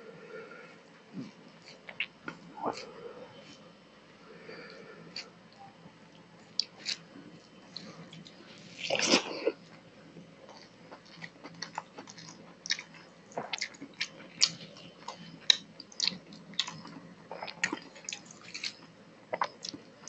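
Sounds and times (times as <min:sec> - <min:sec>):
person eating: 0:07.7 - 0:09.6, 0:10.4 - 0:19.8.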